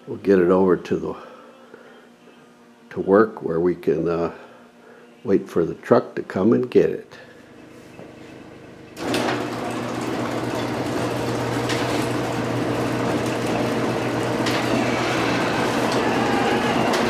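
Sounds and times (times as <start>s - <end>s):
mechanical running noise with hum: 7.4s - 17.0s.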